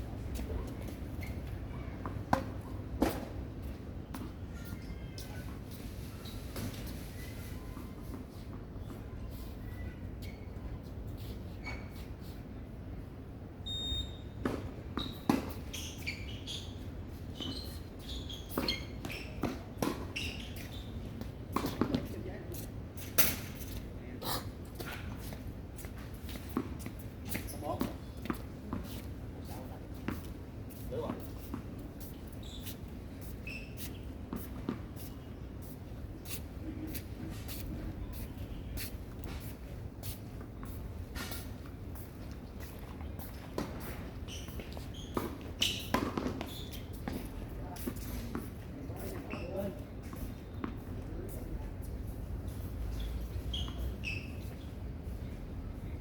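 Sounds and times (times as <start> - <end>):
shoe squeak: 1.1 - 1.5, 9.4 - 10.6, 11.6 - 12.1, 13.6 - 14.4, 15.0 - 22.0, 32.3 - 35.2, 43.3 - 47.4, 49.0 - 50.9, 52.8 - 54.8
short high beep: 13.7 - 14.2
tennis ball hits and bounces: 18.5 - 20.2, 21.2 - 22.2, 23.1 - 23.5, 43.5 - 49.4.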